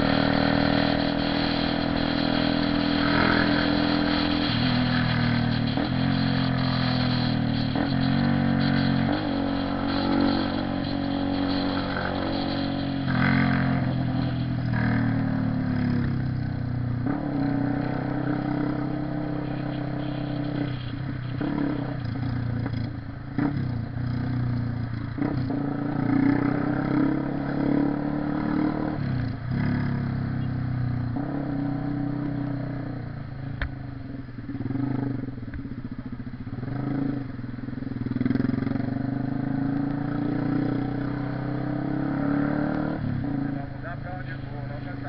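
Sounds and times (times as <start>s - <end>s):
motorcycle engine running: 0.0s - 26.8s.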